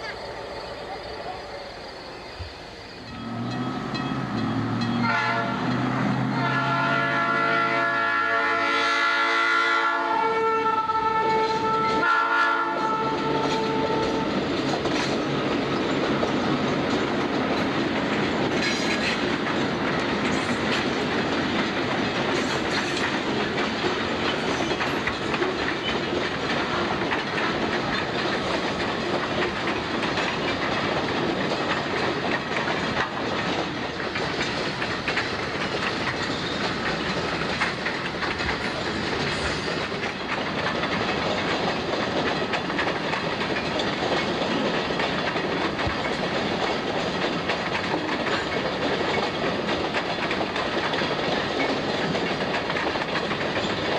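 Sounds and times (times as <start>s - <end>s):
train wheels rumbling: 0.0s - 53.9s
wheels clacking over rail joints: 2.4s - 53.9s
locomotive horn chord: 3.2s - 14.2s.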